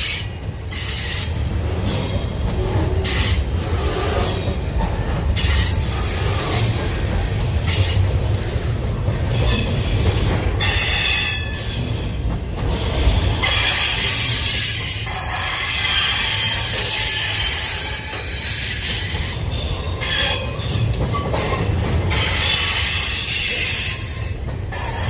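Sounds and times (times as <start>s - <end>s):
freight train rumbling past: 0.0s - 25.0s
train wheels squealing: 9.3s - 25.0s.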